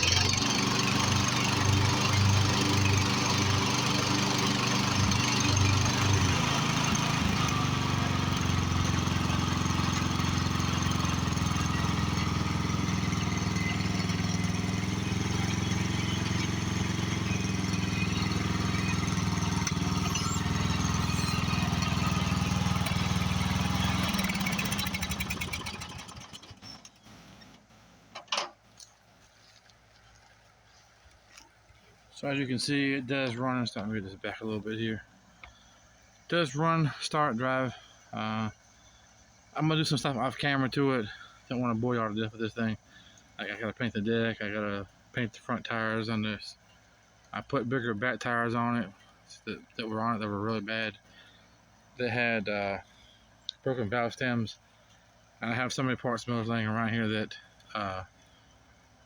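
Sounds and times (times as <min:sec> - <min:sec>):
mower engine running: 0:00.0 - 0:27.6.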